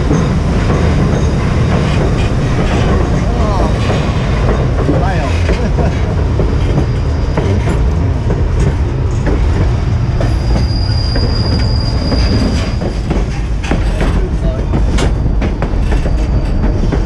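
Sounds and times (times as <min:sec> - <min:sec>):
train cars rumbling on track: 0:00.0 - 0:17.0
high wheel squeal: 0:06.0 - 0:08.7, 0:09.8 - 0:13.7.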